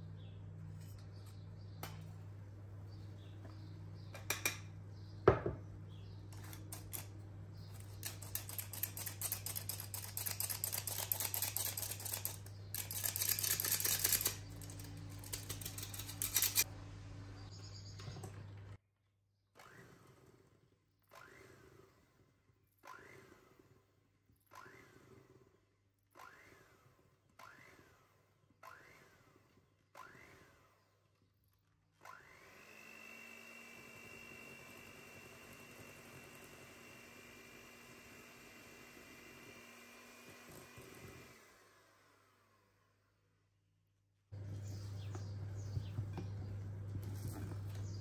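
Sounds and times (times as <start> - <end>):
kitchen utensils clicking and scraping: 6.3 - 16.7.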